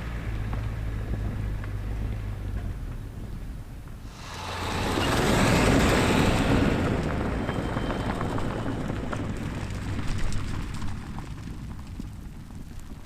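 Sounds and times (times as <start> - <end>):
rushing storm roar: 4.1 - 12.4
heavy rain: 4.1 - 13.0.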